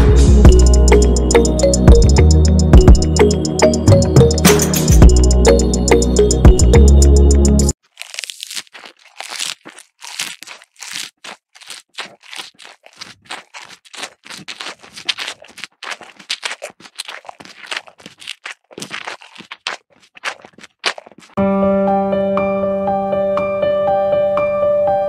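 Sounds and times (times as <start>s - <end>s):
piano music: 0.4s - 7.7s, 21.4s - 25.0s.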